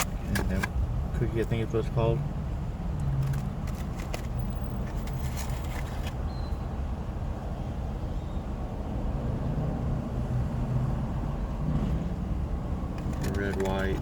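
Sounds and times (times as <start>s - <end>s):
car engine rumble: 0.0s - 14.0s
rustling: 3.2s - 6.2s.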